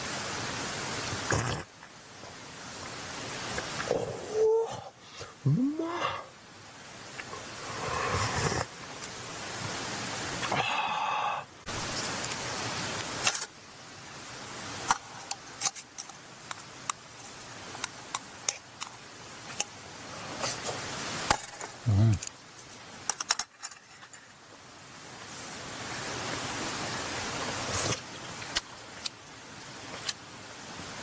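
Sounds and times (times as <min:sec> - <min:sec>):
campfire crackling: 0:06.4 - 0:31.0.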